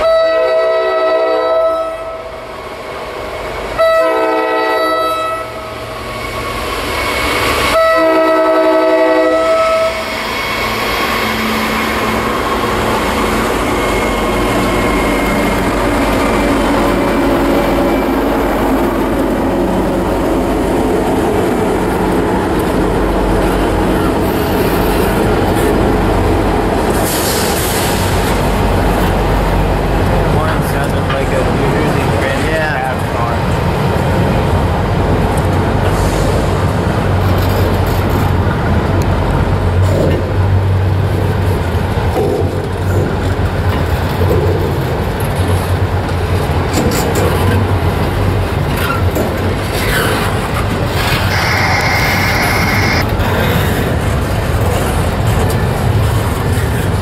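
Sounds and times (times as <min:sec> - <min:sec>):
locomotive air horn blasts: 0:00.0 - 0:02.3, 0:03.8 - 0:05.7, 0:07.7 - 0:10.0
locomotive passing: 0:01.6 - 0:57.0
train wheels clattering on rails: 0:10.0 - 0:34.3, 0:35.0 - 0:57.0.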